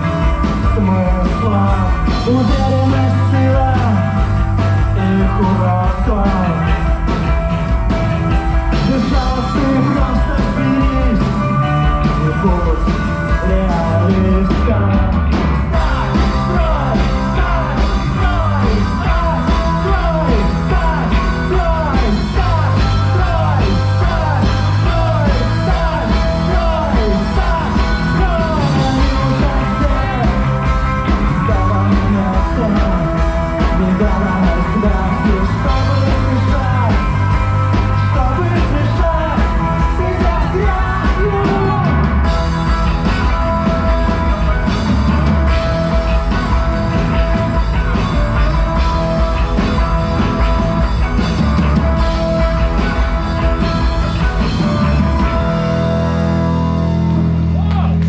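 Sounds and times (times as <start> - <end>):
person singing: 0.0 - 7.0, 8.7 - 42.5
rock band playing live: 0.0 - 58.0.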